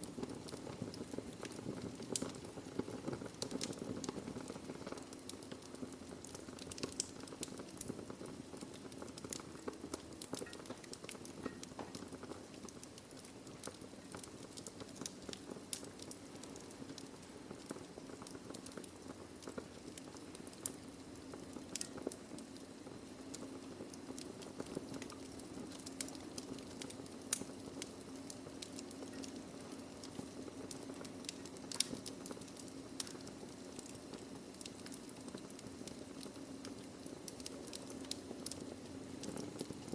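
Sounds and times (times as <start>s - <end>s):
fire crackling and popping: 0.0s - 39.9s
flame hissing: 0.0s - 39.9s.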